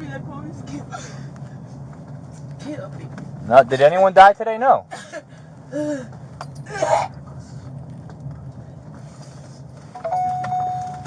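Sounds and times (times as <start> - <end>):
idling vehicle hum: 0.0 - 11.0.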